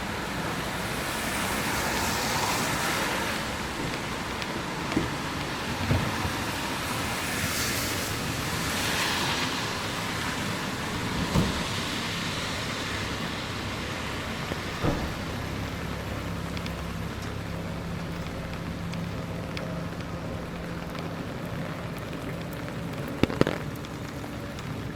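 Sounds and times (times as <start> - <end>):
wet tyre hiss: 0.0 - 19.9
road traffic noise: 0.0 - 24.9
low thumps: 3.4 - 7.2.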